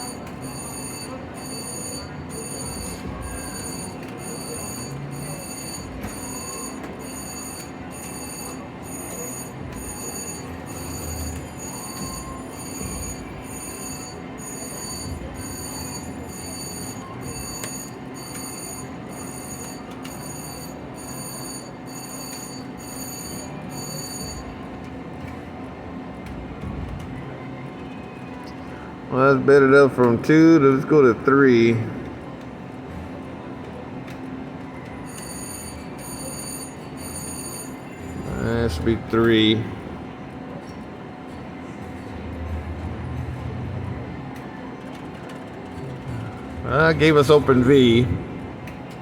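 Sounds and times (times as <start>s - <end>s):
slot machine chiming: 0.0s - 25.0s, 34.9s - 39.8s, 45.0s - 48.2s.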